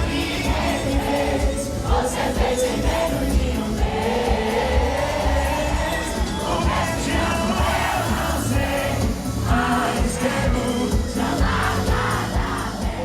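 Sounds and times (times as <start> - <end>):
amplified singing: 0.0 - 13.0
band with heavy bass beat: 0.0 - 13.0
crowd singing along: 0.0 - 13.0.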